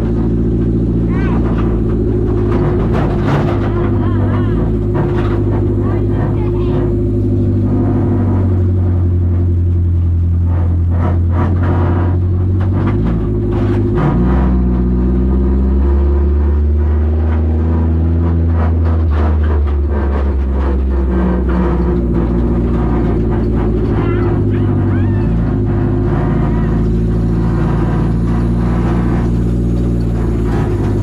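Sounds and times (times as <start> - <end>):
car engine running: 0.0 - 31.0.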